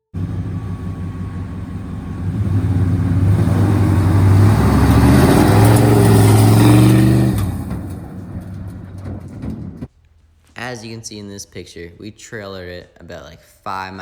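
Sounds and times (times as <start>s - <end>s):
vehicle engine revving: 0.0s - 9.9s.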